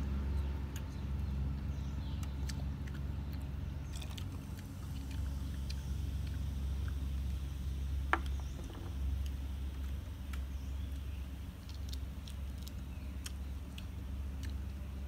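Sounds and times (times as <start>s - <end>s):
steady low hum: 0.0s - 15.0s
person eating with fingers: 8.2s - 15.0s.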